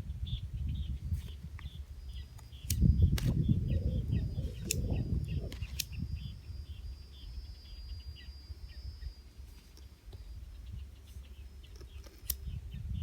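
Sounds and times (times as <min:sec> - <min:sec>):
low rumbling on microphone: 0:00.0 - 0:09.6
birds chirping: 0:00.0 - 0:13.0
sharp clicks: 0:01.2 - 0:03.4, 0:04.5 - 0:06.0, 0:11.6 - 0:12.6.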